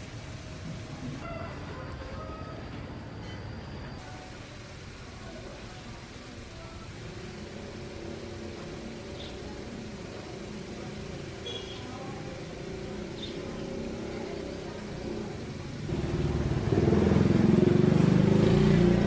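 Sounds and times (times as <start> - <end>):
vehicle engine revving: 13.6 - 19.0.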